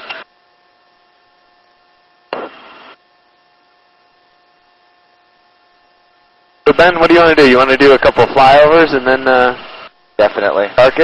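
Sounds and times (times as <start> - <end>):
faint electrical hum: 0.0 - 11.0
static hiss burst: 2.3 - 3.0.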